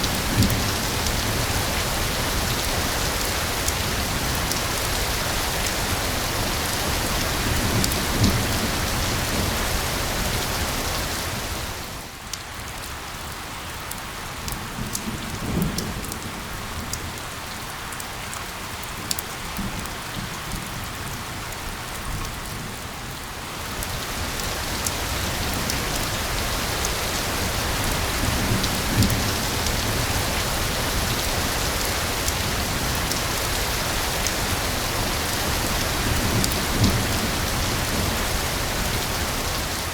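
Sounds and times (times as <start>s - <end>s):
raindrops ticking: 0.0s - 8.7s
rain falling: 0.0s - 39.9s.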